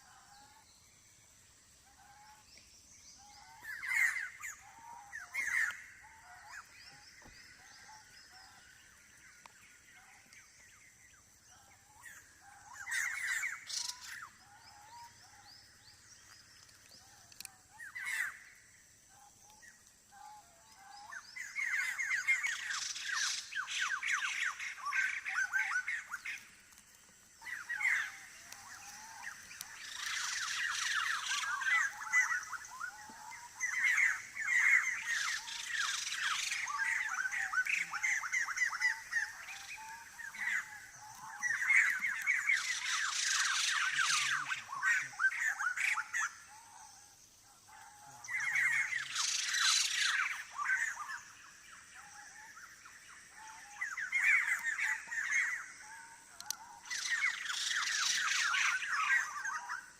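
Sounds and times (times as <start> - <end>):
birds rattling chatter: 19.8 - 46.6.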